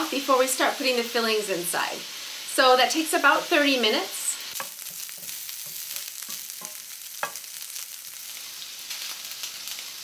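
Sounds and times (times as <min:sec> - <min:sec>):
sausage sizzling in a pan: 0:00.0 - 0:10.0.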